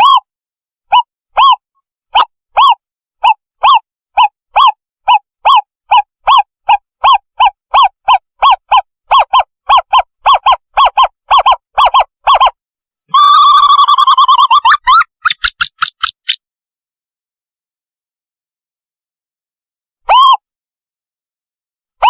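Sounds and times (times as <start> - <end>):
owl lure hooting call: 0.0 - 0.3, 0.9 - 16.4.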